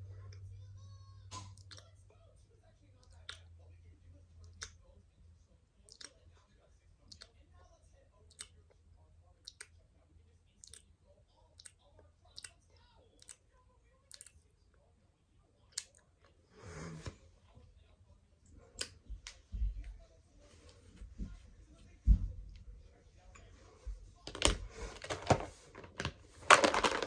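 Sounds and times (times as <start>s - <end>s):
makeup items clicking: 24.3s - 27.0s.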